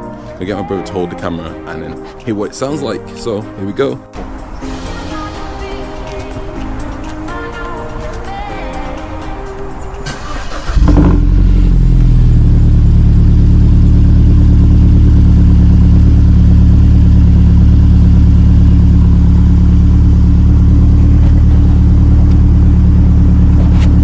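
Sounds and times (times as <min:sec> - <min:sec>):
car engine cranking and starting: 0:09.8 - 0:24.0
car engine idling deeply: 0:10.1 - 0:24.0.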